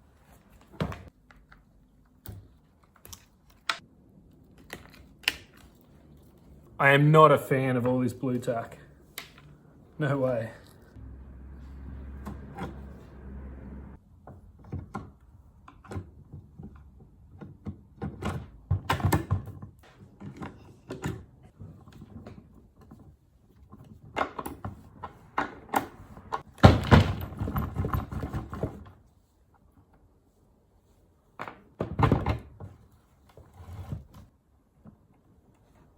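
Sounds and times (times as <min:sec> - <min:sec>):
low hum: 0:10.7 - 0:14.0
tools and parts clattering: 0:18.0 - 0:28.9.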